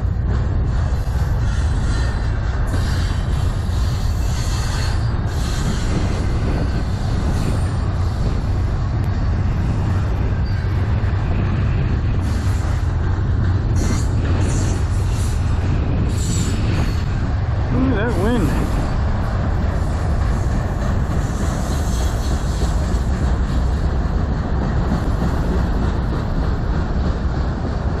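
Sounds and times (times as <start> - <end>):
freight train cars rolling: 0.0 - 28.0
wind buffeting microphone: 0.0 - 28.0.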